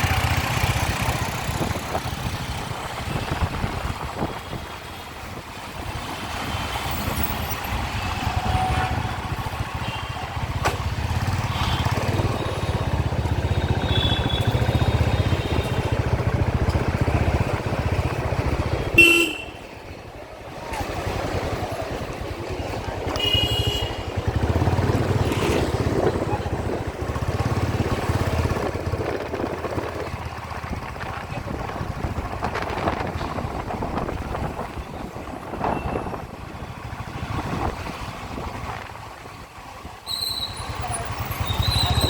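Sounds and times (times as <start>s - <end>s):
engine and road rumble: 0.0s - 42.0s
vehicle horns honking: 13.6s - 15.9s, 18.8s - 19.7s, 23.1s - 24.2s.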